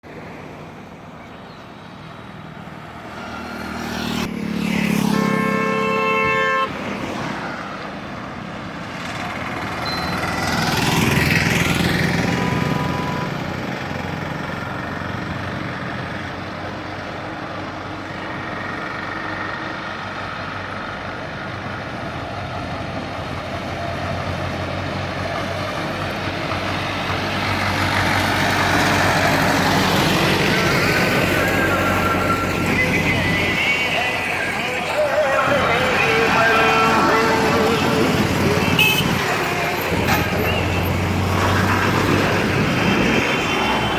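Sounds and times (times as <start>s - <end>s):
tractor diesel engines under load: 0.0s - 43.9s
vehicle horn: 4.9s - 6.8s, 31.2s - 40.9s.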